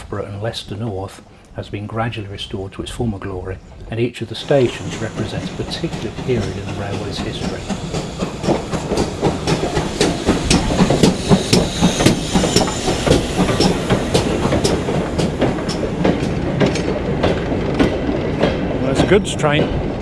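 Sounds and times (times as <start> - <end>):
train rumble: 4.2 - 20.0
wagon wheels clicking over rail joints: 4.4 - 19.9.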